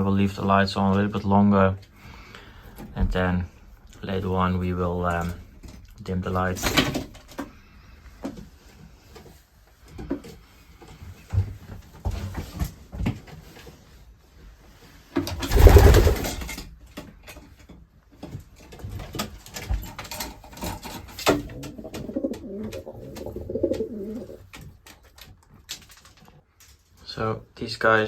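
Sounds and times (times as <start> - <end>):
loud rustling: 15.4 - 16.6
pigeons cooing: 21.3 - 24.5.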